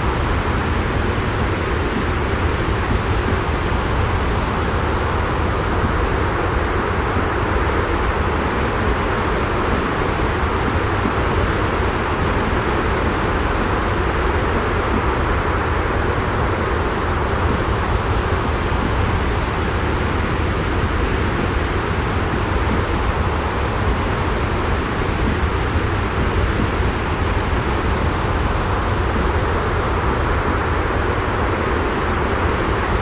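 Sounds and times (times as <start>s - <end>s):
white noise rushing: 0.0s - 33.0s.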